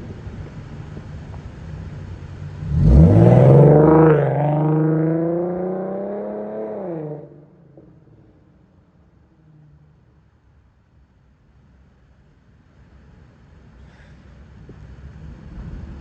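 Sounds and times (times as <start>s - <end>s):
car engine accelerating hard: 0.3s - 8.2s.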